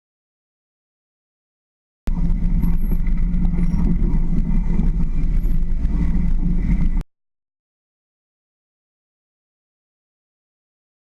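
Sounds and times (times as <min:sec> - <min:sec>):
car engine low rumble: 0:02.1 - 0:07.0.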